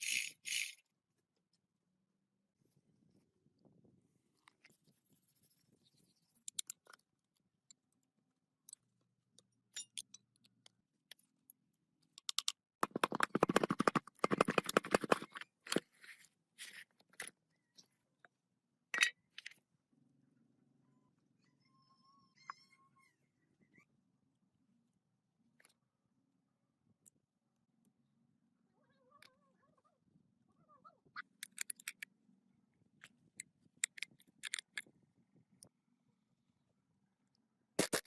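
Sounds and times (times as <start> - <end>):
metallic clicks and clinks: 9.7 - 10.5.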